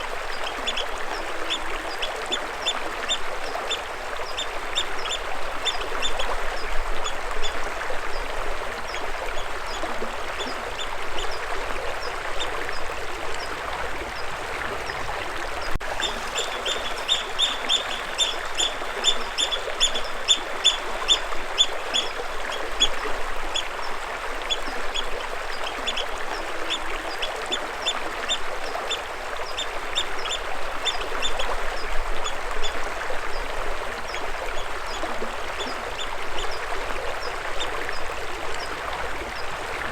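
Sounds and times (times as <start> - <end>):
flowing water rushing: 0.0 - 39.9
small bird chirping: 16.0 - 22.2.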